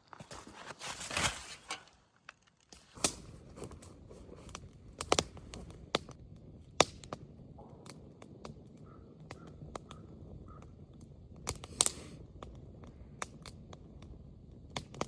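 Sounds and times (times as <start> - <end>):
rustling scrape: 0.0 - 2.2
wood fire crackling: 0.0 - 15.0
sharp pops from fire: 1.1 - 15.0.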